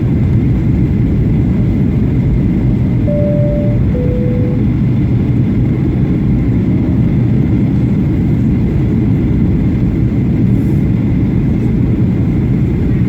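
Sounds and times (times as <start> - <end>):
airplane cabin engine roar: 0.0 - 13.0
two-tone cabin chime: 3.1 - 4.9.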